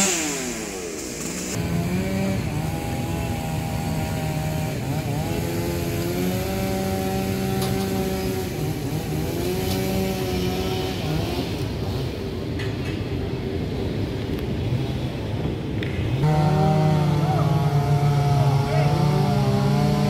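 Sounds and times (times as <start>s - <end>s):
chainsaw running: 0.0s - 12.4s, 16.1s - 20.0s.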